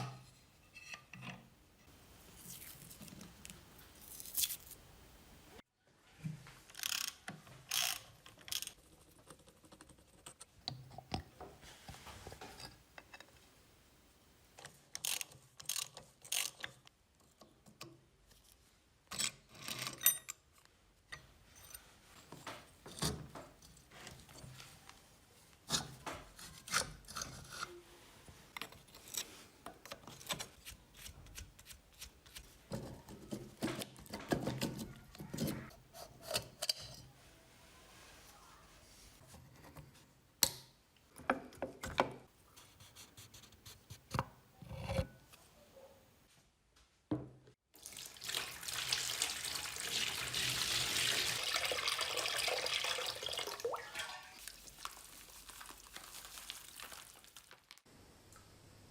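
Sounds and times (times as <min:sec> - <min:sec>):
tools clinking on metal: 0:19.1 - 0:20.4.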